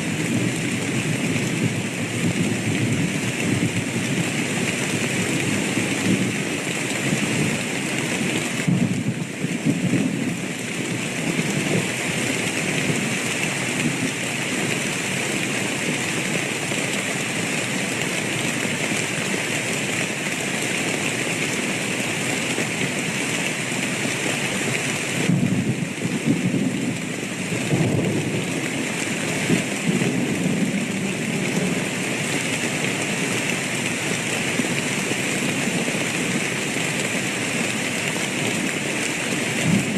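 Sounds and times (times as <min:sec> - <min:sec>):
heavy rain falling: 0:00.0 - 0:39.9
low rolling thunder: 0:08.6 - 0:10.3, 0:25.3 - 0:28.6, 0:39.6 - 0:39.9.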